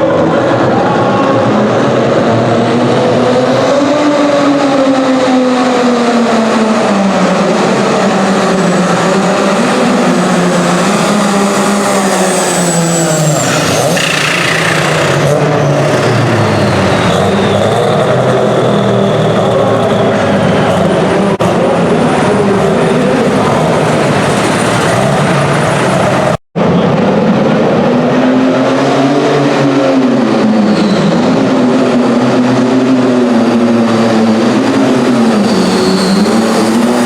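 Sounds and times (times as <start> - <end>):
diesel engine running hard: 0.0 - 37.0
turbo whistle: 13.0 - 20.8, 35.3 - 37.0.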